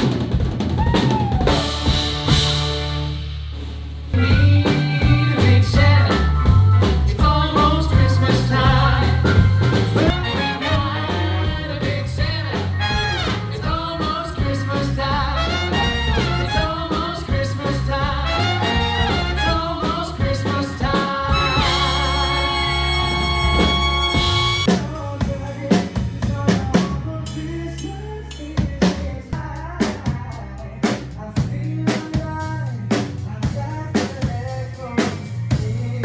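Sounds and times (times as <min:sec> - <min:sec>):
band playing upbeat song: 0:00.0 - 0:36.0
bass line: 0:00.0 - 0:36.0
drum kit: 0:00.0 - 0:36.0
person singing: 0:04.2 - 0:23.2.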